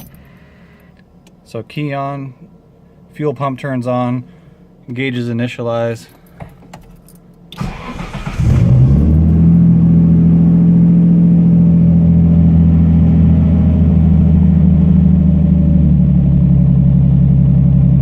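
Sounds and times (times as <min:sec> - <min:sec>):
car engine starting and idling: 0:06.3 - 0:18.0
starter motor cranking: 0:07.6 - 0:08.9.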